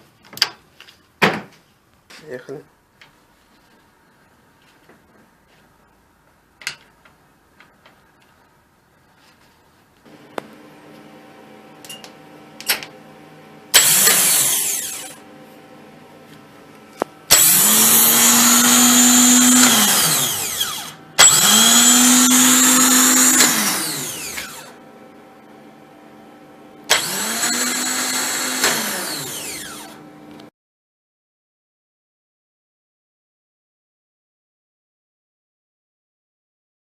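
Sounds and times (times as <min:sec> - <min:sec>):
starter motor whirring whine: 0:10.1 - 0:30.5.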